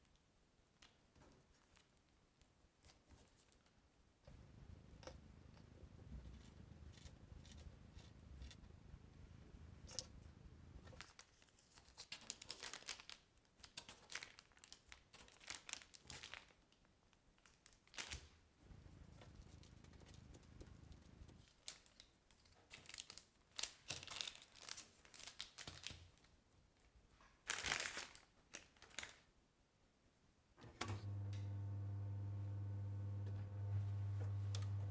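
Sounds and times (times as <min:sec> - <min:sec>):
material crinkling and rustling: 0:10.8 - 0:29.3.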